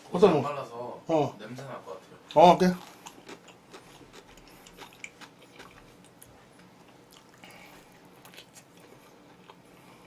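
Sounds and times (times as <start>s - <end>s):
soft chewing: 2.6s - 10.0s.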